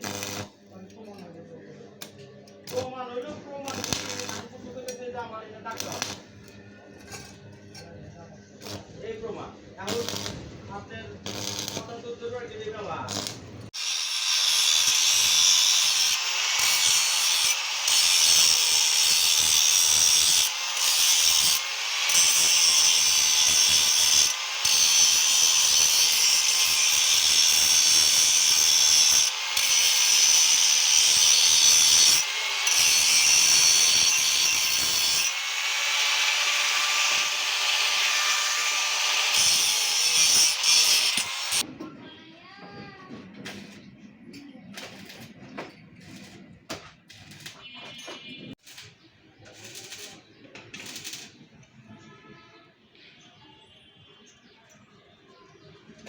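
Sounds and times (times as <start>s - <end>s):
power tool working metal: 0.0s - 0.5s, 3.7s - 4.5s, 11.3s - 11.9s, 13.1s - 41.7s.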